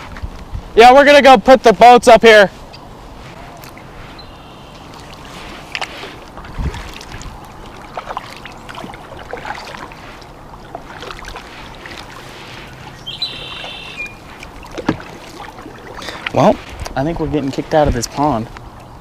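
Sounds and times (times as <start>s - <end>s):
paddle splashing water: 2.5s - 19.0s
paddle knocking against hull: 13.3s - 16.4s.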